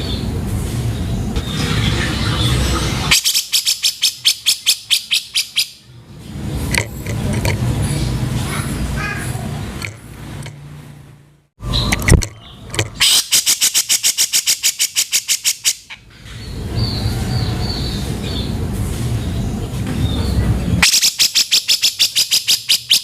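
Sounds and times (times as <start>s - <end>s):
rumbling noise: 0.0s - 3.2s
bulbul rasping rattling call: 11.8s - 16.0s, 20.8s - 23.0s.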